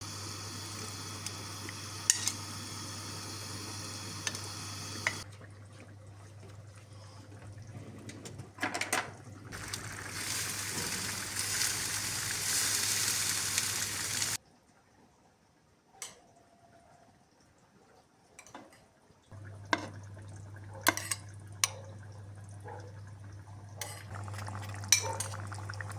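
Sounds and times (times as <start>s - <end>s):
food sizzling in a pan: 0.0s - 5.2s, 9.5s - 14.4s, 19.3s - 21.8s, 23.8s - 25.9s
utensils clattering on cookware: 2.1s - 2.4s, 23.8s - 25.5s.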